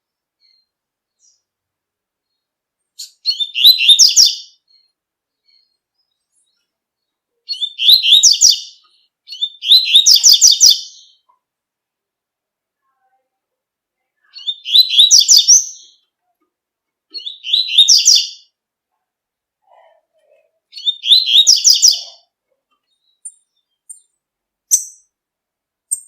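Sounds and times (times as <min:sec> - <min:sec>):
bird chirps: 0:00.4 - 0:01.5, 0:02.2 - 0:11.4, 0:14.2 - 0:16.1, 0:17.1 - 0:18.6, 0:20.3 - 0:25.2
bird song phrases: 0:00.4 - 0:01.6, 0:02.2 - 0:11.4, 0:14.0 - 0:16.4, 0:17.1 - 0:18.6, 0:19.6 - 0:25.2.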